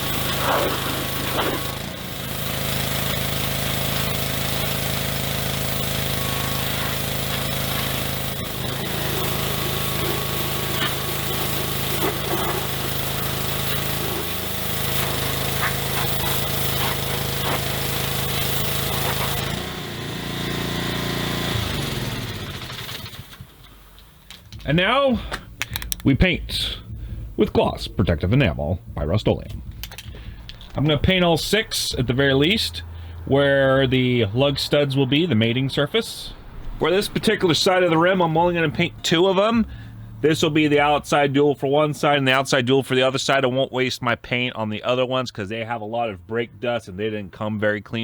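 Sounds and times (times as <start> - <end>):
power tool motor: 0.0 - 27.4, 29.6 - 34.5.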